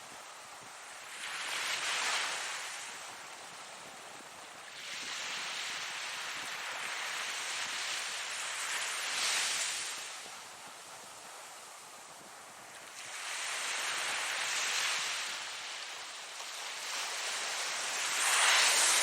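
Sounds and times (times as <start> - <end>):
ocean waves breaking: 12.6 - 19.0.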